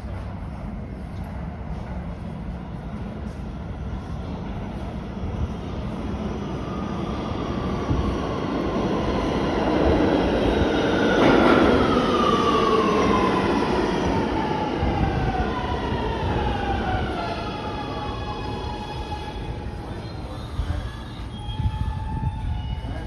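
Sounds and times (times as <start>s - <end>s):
subway train rumbling on track: 0.0s - 23.0s.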